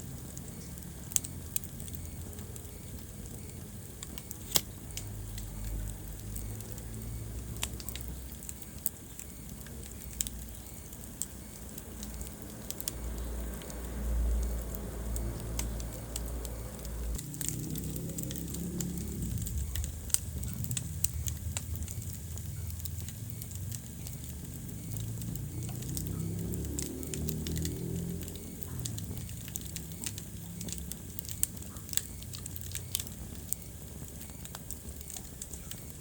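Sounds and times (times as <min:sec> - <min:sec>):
low rumble of flames: 0:00.0 - 0:36.0
wood fire crackling: 0:00.0 - 0:36.0.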